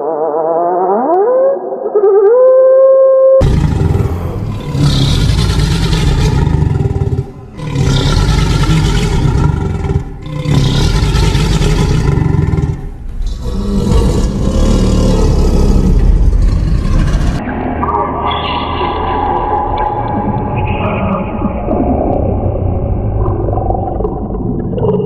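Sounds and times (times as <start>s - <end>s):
low rumbling dinosaur roars: 3.4s - 17.4s.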